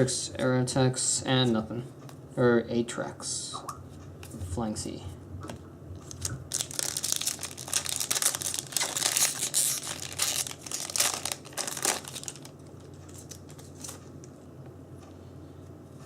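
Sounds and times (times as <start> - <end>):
foil wrapper crinkling: 6.0 - 14.1.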